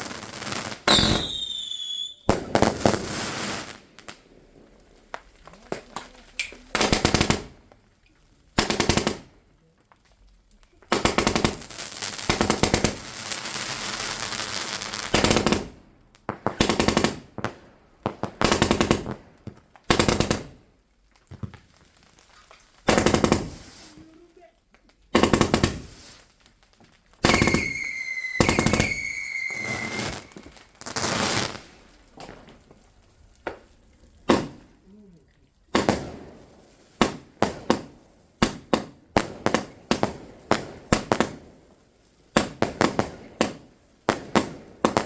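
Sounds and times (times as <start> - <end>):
fireworks crackling pops: 0.0 - 45.0
firework whistle: 0.8 - 3.7, 27.2 - 31.6.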